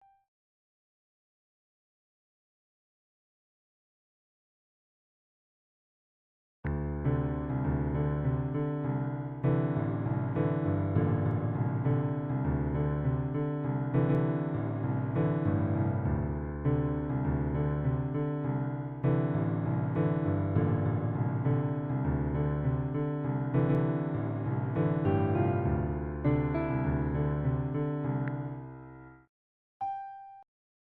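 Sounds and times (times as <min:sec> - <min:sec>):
piano chords over bass notes: 0:06.7 - 0:30.0.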